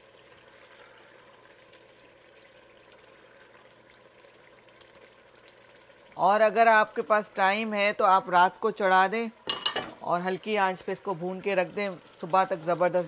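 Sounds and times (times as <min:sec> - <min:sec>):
masala sizzling in oil: 0:00.0 - 0:13.0.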